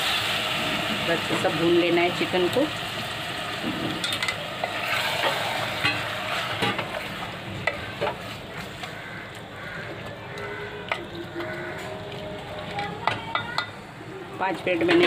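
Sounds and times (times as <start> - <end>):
chicken sizzling in a pot: 0.0 - 9.0.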